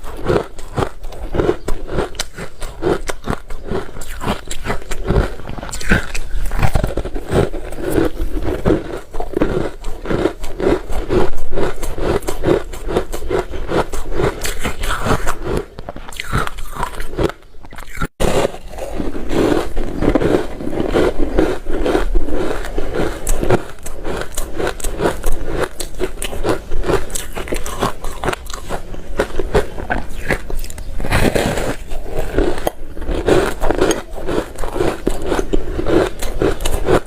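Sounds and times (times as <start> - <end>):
ice being crunched by teeth: 0.0 - 37.0.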